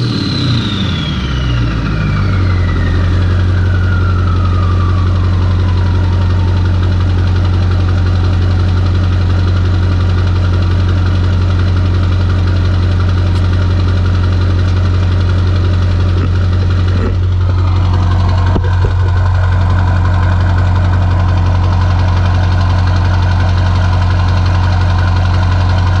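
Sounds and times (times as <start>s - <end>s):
high turbo whistle: 0.0s - 7.1s
diesel engine idling: 0.0s - 26.0s.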